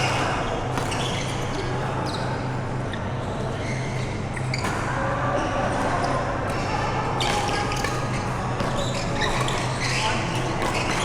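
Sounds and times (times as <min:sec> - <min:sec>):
racket hitting shuttlecock: 0:00.0 - 0:01.3, 0:06.5 - 0:11.0
sports hall noise: 0:00.0 - 0:11.0.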